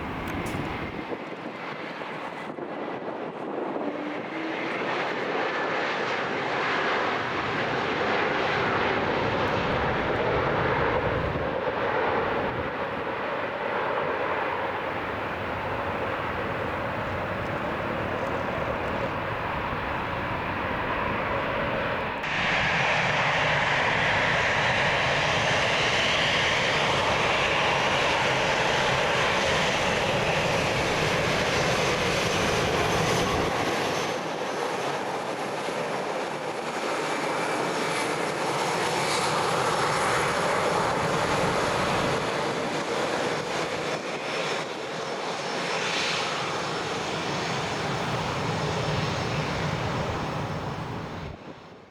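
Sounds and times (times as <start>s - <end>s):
jet engines roaring: 0.0s - 51.9s.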